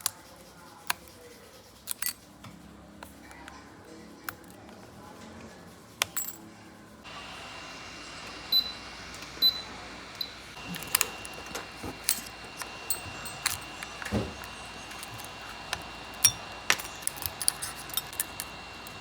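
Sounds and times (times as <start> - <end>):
metal tools clinking on surface: 1.9 - 2.3, 6.1 - 6.5, 10.6 - 19.0
faint hiss with high whine: 7.1 - 17.4.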